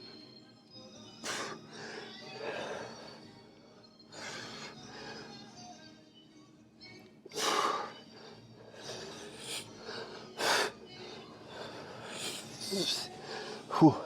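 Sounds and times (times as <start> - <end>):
man breathing heavily: 1.2 - 3.4, 4.1 - 5.6, 7.3 - 14.0.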